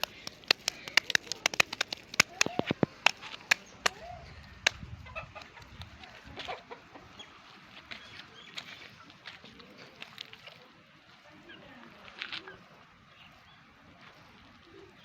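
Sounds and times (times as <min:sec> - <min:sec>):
sharp clicks and snaps: 0:00.0 - 0:04.0.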